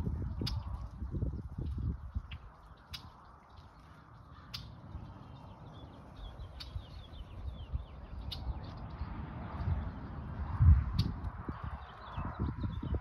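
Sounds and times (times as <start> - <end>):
small birds twittering: 0.1 - 0.9, 1.6 - 13.0.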